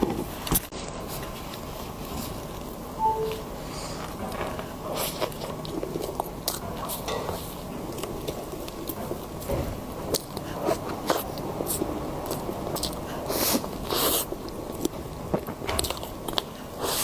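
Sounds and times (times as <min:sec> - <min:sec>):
biting and chewing food: 0:04.3 - 0:17.0.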